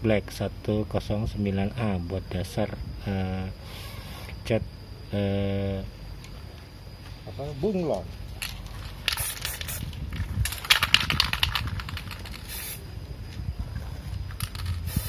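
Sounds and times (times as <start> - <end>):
aerosol can rattling: 8.4 - 12.8, 14.4 - 15.0
aerosol spray hissing: 9.0 - 10.0, 12.2 - 12.9, 14.6 - 15.0.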